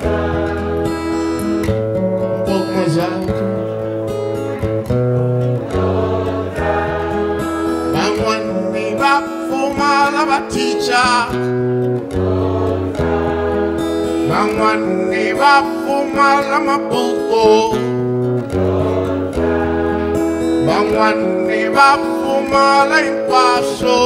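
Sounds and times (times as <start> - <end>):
person singing: 0.0 - 4.8, 5.4 - 11.5, 13.9 - 18.0, 18.8 - 24.0
acoustic guitar music: 0.0 - 24.0.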